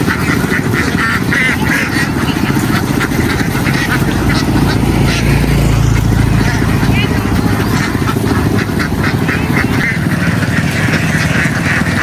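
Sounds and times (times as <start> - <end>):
ducks quacking: 0.0 - 12.0
low engine hum: 0.0 - 12.0.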